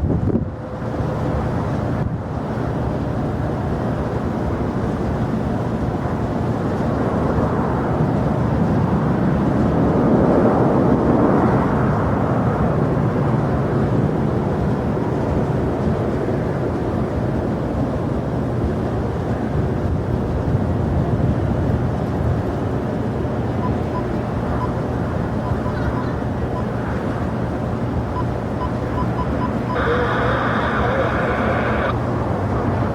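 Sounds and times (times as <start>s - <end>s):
jet airliner engine rushing: 0.0s - 32.9s.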